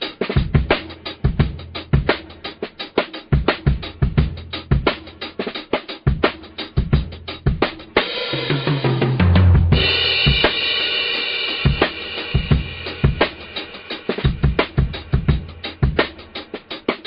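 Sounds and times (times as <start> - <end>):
kick and snare drum beat: 0.0 - 17.0
held bass notes: 8.4 - 10.4.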